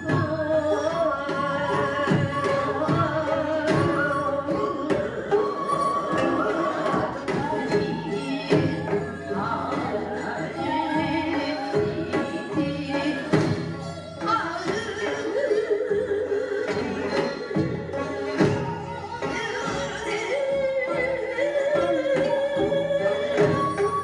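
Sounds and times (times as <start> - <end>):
drum strokes: 0.0 - 15.5.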